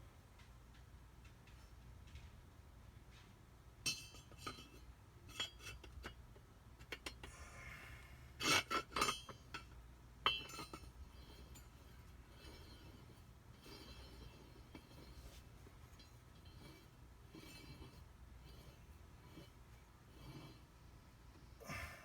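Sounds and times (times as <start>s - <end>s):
metal scraping rub: 10.3s - 20.8s.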